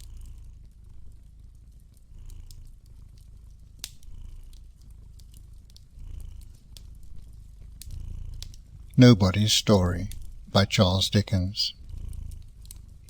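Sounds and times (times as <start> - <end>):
cat purring: 0.0 - 13.0
wood fire crackling and popping: 1.6 - 7.6.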